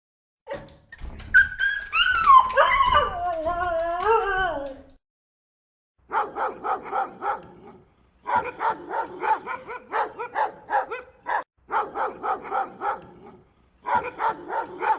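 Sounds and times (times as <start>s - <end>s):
dog barking rapidly: 6.0s - 14.9s.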